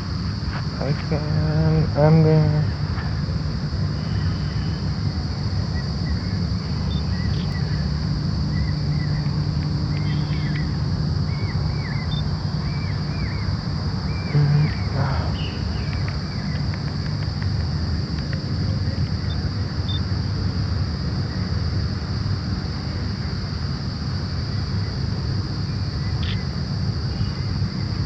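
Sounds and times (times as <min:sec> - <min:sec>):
high insect drone: 0:00.0 - 0:28.0
small bird chirping: 0:09.9 - 0:13.5.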